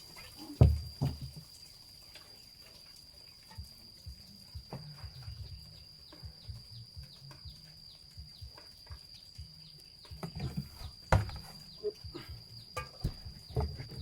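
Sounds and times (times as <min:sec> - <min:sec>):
insect drone: 0:00.0 - 0:14.0
low knocks and thuds: 0:00.6 - 0:01.4, 0:10.1 - 0:11.6.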